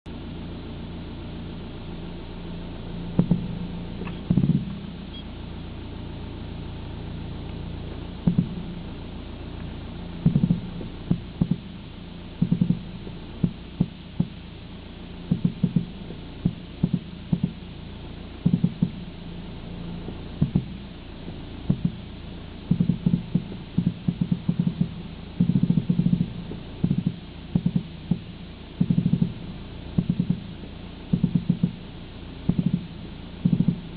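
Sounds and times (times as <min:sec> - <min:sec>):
steady low rumble: 0:00.0 - 0:33.9.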